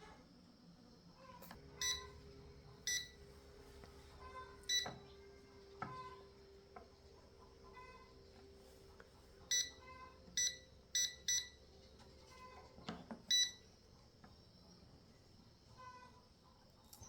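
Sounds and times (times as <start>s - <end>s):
short electronic beeps: 2.9s - 3.2s, 9.5s - 9.8s, 10.4s - 11.6s.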